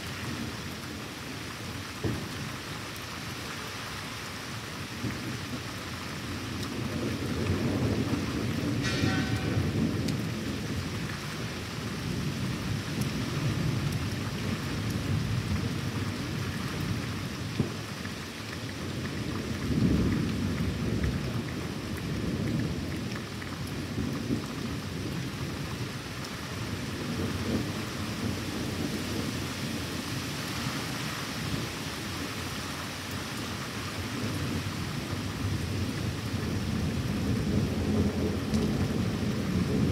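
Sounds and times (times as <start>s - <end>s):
rain pattering: 0.0s - 39.9s
low rolling thunder: 6.4s - 17.8s, 18.9s - 23.1s, 34.1s - 39.9s.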